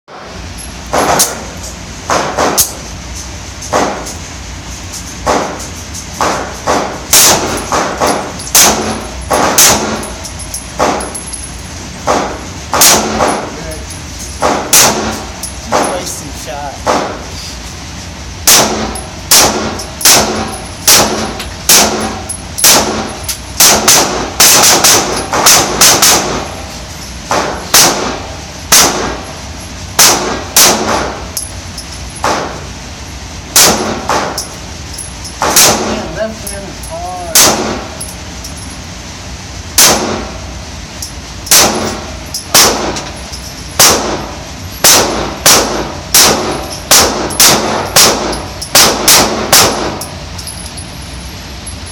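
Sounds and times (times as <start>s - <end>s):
pistol shots echoing: 6.2s - 10.2s, 12.0s - 13.6s, 14.4s - 16.0s, 18.5s - 26.6s, 27.3s - 29.2s, 30.0s - 31.3s, 33.5s - 34.4s, 35.4s - 36.0s, 37.3s - 38.0s, 39.8s - 40.4s, 41.5s - 43.0s, 43.8s - 50.1s.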